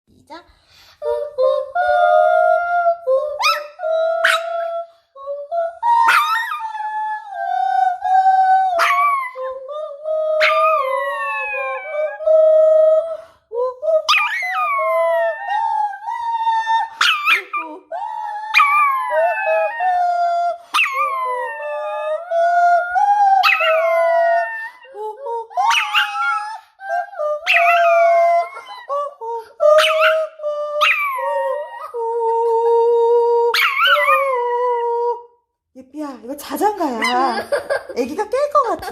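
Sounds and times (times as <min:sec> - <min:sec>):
dog howling: 0:10.3 - 0:13.0, 0:14.0 - 0:25.0, 0:25.6 - 0:29.0, 0:29.8 - 0:35.2.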